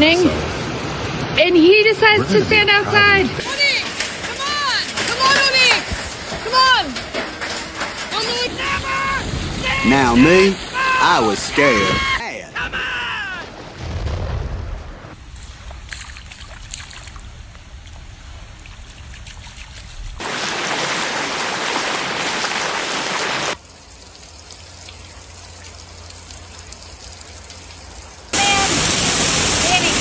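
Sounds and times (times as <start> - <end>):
torrential rain pouring: 0.0 - 30.0.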